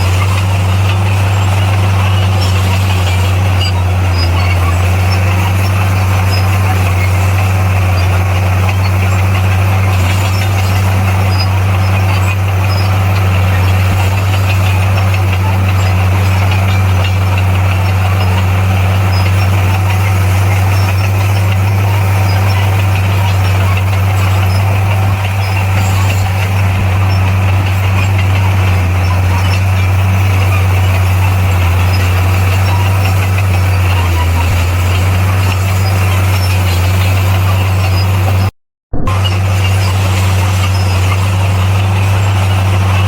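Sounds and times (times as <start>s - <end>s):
diesel engine droning: 0.0s - 43.0s.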